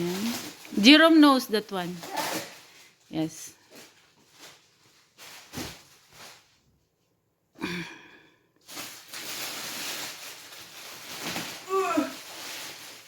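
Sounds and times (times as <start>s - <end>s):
plastic bag rustling: 0.0s - 6.8s, 8.6s - 13.0s
person sighing or exclaiming: 7.6s - 8.2s, 11.7s - 12.3s.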